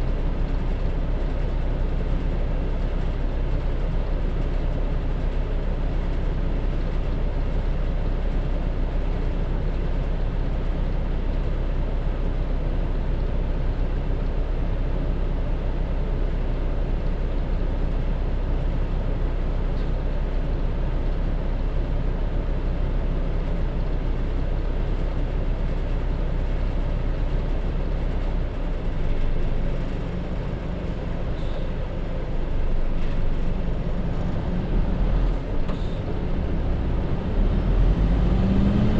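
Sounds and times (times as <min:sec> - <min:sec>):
bus engine rumble: 0:00.0 - 0:38.9.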